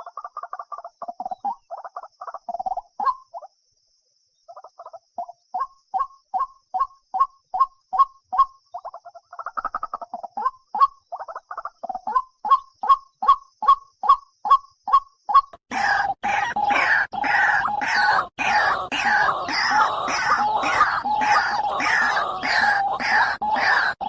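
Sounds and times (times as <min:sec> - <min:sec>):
bird calling repeated notes: 0:12.1 - 0:24.0.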